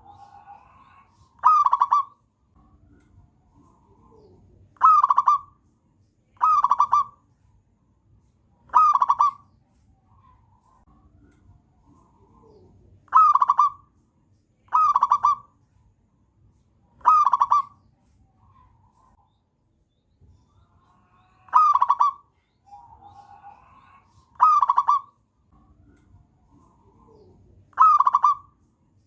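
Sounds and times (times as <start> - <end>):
fainter dove calls: 0.0 - 2.2, 3.6 - 5.6, 6.4 - 7.2, 8.7 - 9.5, 11.9 - 13.9, 14.6 - 15.6, 17.0 - 19.2, 20.4 - 25.2, 26.4 - 28.7
dove pulsed cooing: 1.4 - 2.2, 3.6 - 5.6, 6.4 - 7.2, 8.7 - 9.4, 11.8 - 13.9, 14.7 - 15.5, 17.0 - 17.8, 21.5 - 25.2, 25.8 - 28.6.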